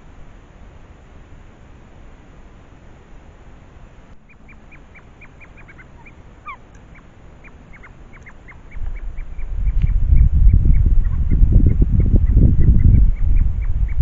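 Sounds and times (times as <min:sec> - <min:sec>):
birds calling: 0:04.1 - 0:14.0
low rumble: 0:08.6 - 0:14.0.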